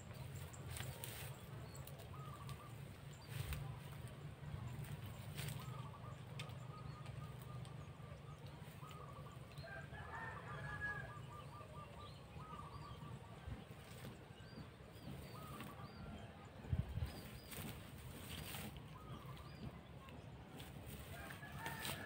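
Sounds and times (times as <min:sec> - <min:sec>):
birds calling repeated notes: 0:00.0 - 0:09.6, 0:10.4 - 0:13.6
steady low rumble: 0:00.0 - 0:22.0.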